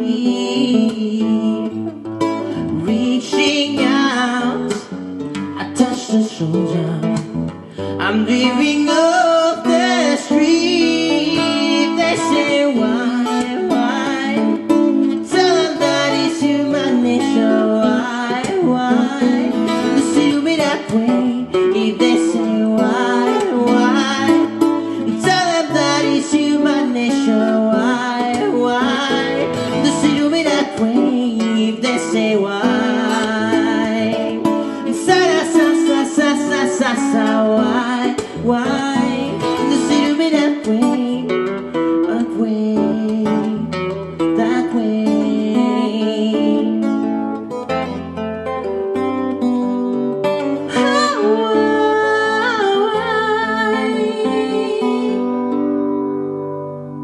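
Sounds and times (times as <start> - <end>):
person singing: 0.0 - 48.2, 49.3 - 57.0
acoustic guitar strummed and picked: 0.0 - 57.0.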